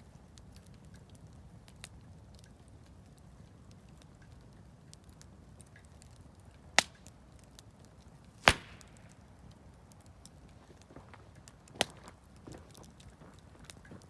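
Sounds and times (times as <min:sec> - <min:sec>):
campfire crackling: 0:00.0 - 0:14.0
loud sharp fire pops: 0:06.8 - 0:07.2, 0:08.3 - 0:10.1.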